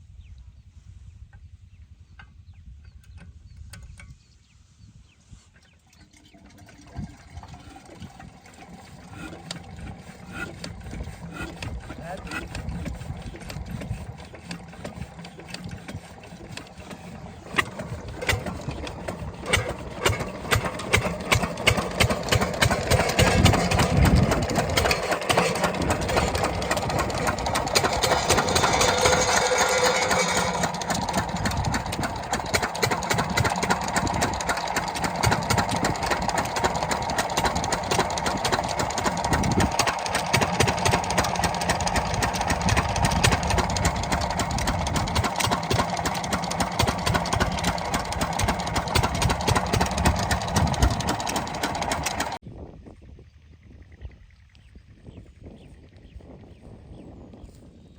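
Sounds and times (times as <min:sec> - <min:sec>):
diesel pump engine thudding: 0:06.1 - 0:52.4.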